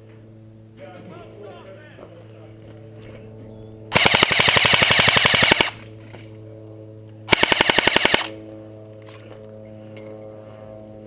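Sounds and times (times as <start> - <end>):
airsoft gun full-auto bursts: 3.9 - 5.8, 7.3 - 8.4.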